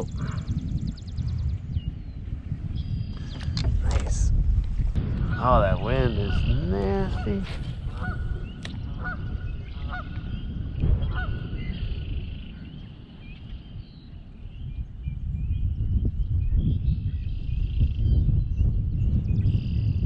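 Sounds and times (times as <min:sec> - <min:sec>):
wind rumbling on microphone: 0:00.0 - 0:20.0
geese honking: 0:05.2 - 0:10.4.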